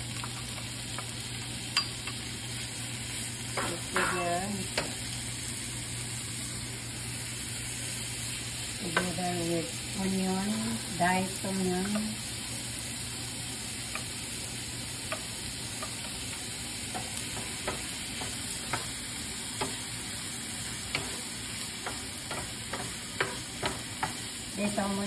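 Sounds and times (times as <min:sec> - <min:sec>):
ham and onion sizzling: 0:00.0 - 0:25.0.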